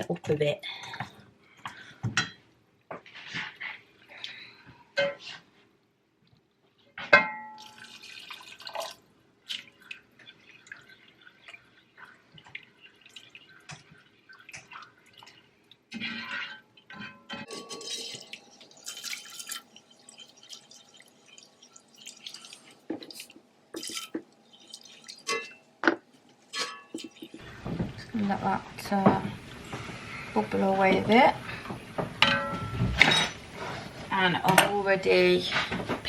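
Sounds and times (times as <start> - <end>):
liquid poured and stirred: 6.2 - 28.1.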